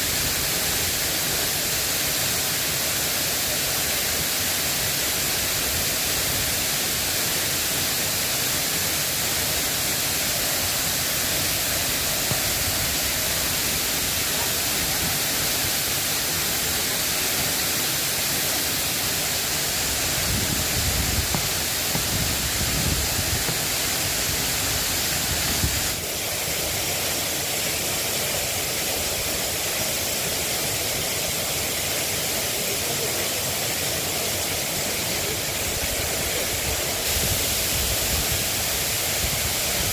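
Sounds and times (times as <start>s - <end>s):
rain falling: 0.0s - 27.4s.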